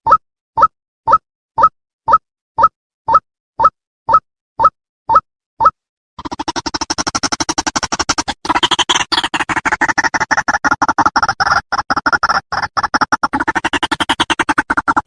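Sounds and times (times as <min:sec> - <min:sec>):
waterhen call fast rhythmic chatter: 0:06.2 - 0:15.0.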